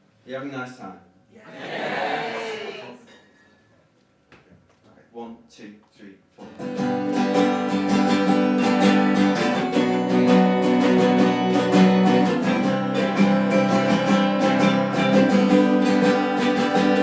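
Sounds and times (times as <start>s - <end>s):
acoustic guitar strumming: 6.4s - 17.0s.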